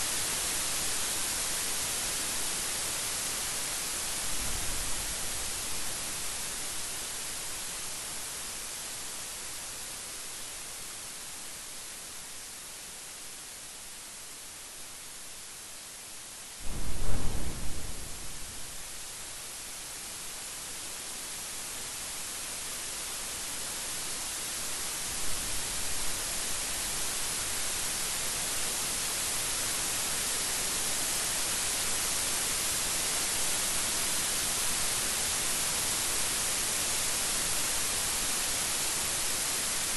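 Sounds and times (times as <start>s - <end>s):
rain hissing: 16.4s - 20.6s
thunder crack rumbling: 16.6s - 19.0s.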